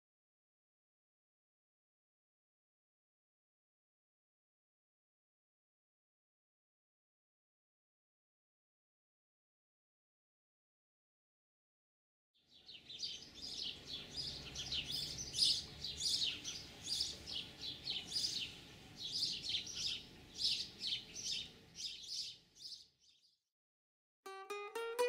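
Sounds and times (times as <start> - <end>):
small birds chirping: 12.4 - 23.4.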